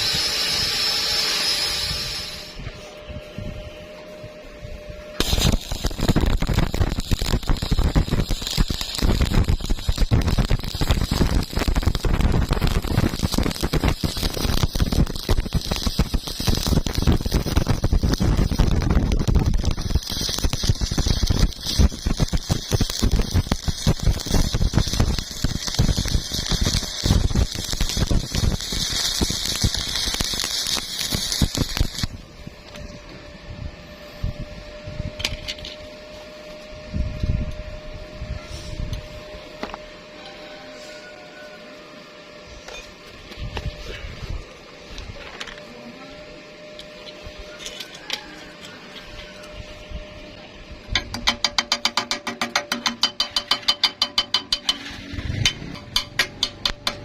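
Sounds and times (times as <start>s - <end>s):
welding arc crackling: 0.0s - 2.6s, 5.2s - 32.2s, 46.7s - 57.0s.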